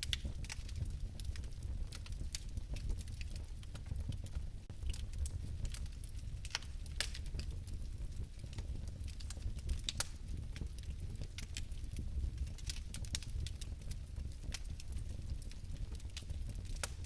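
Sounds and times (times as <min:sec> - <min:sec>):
fire crackling and popping: 0:00.0 - 0:17.0
low rumble of flames: 0:00.0 - 0:17.0.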